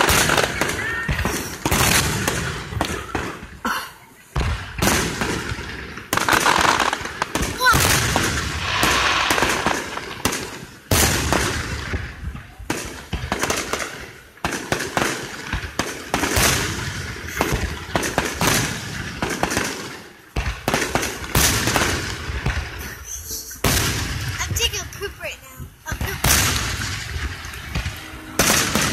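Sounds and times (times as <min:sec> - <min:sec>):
fireworks bursting and crackling: 0:00.0 - 0:28.9
rising firework whistle: 0:08.0 - 0:10.6.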